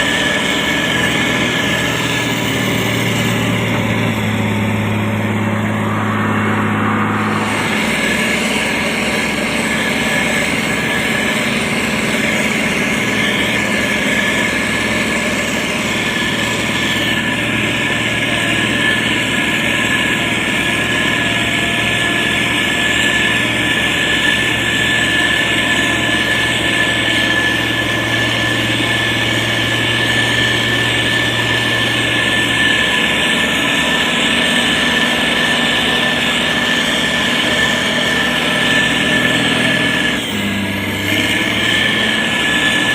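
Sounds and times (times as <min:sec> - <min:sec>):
diesel engine running: 0:00.0 - 0:42.9
high whine: 0:00.0 - 0:42.9.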